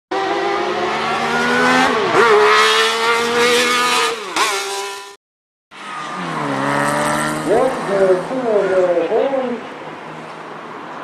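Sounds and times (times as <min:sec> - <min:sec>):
car engine accelerating: 0:05.7 - 0:08.9.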